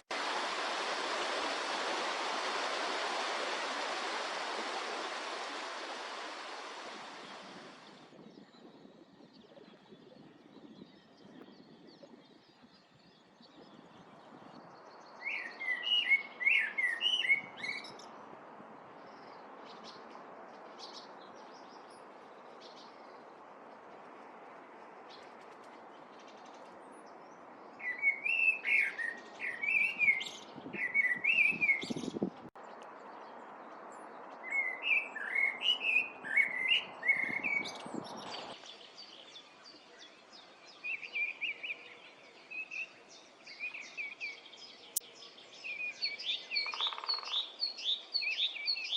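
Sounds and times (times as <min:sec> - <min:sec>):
steady rushing noise: 0:00.0 - 0:08.1
songbird chirping: 0:01.6 - 0:48.9.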